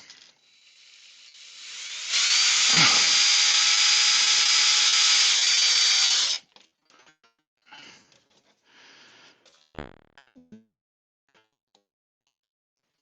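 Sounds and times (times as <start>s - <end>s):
electric drill spinning: 0.0s - 6.4s.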